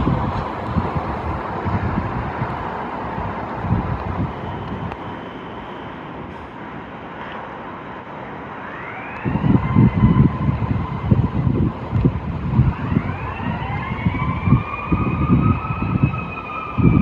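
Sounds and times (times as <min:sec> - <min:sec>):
wind buffeting microphone: 0:00.0 - 0:05.2, 0:08.8 - 0:17.0
emergency vehicle siren wailing: 0:00.0 - 0:17.0
road noise: 0:00.0 - 0:17.0.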